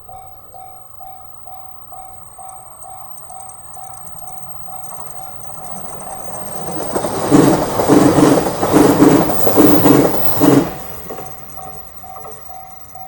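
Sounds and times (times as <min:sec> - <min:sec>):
crossing warning bell ringing: 0:00.0 - 0:13.0
train wheels clacking: 0:04.9 - 0:13.0.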